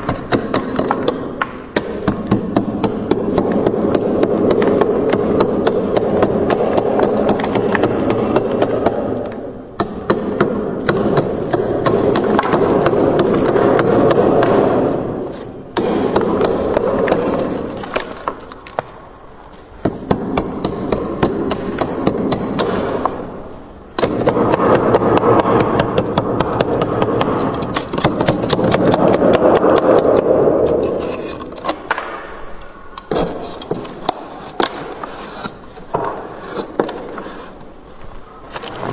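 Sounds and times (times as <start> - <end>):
freezer frost being scraped: 30.8 - 31.7, 33.2 - 37.6.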